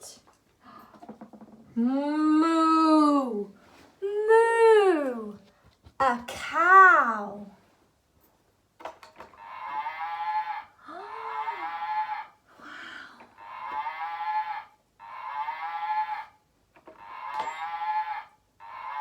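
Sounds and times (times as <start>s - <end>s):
cow mooing: 9.4s - 12.4s, 13.4s - 16.4s, 17.0s - 19.0s.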